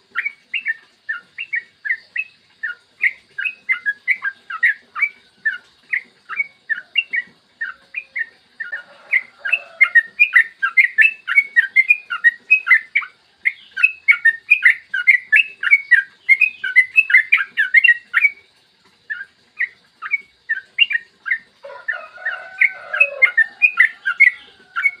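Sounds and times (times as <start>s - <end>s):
lower bird warbling: 0.1s - 18.4s, 19.1s - 25.0s
bird singing rapid bright notes: 0.2s - 18.4s.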